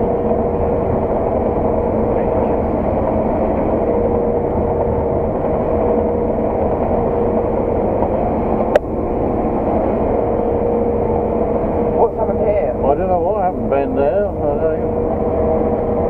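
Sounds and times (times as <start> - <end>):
farm machine engine drone: 0.0 - 16.0
steady hum: 0.0 - 16.0.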